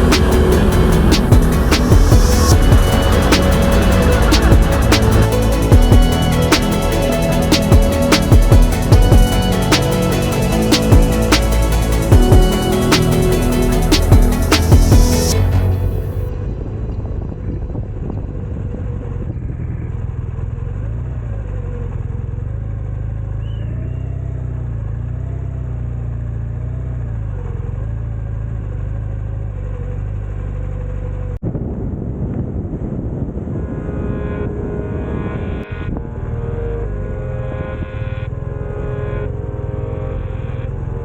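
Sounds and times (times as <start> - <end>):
motorcycle engine rumbling: 0.0 - 23.6.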